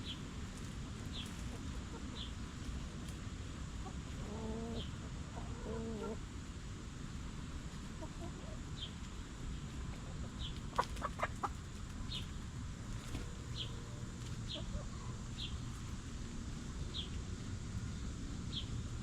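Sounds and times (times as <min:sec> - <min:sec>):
hens clucking: 0:00.6 - 0:06.5, 0:07.4 - 0:16.0.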